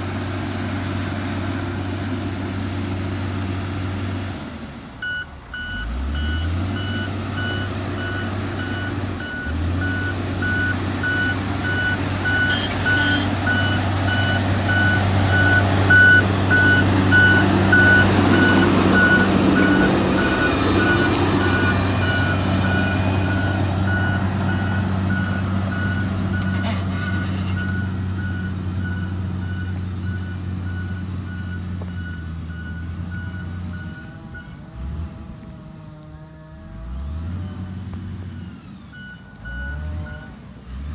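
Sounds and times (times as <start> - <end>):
diesel engine running: 0.0 - 40.9
backup alarm beeping: 5.0 - 34.5.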